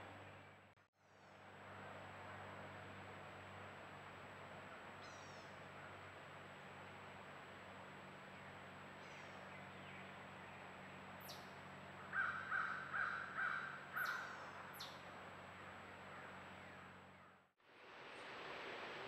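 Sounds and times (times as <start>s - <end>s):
bird calling: 12.0s - 15.0s.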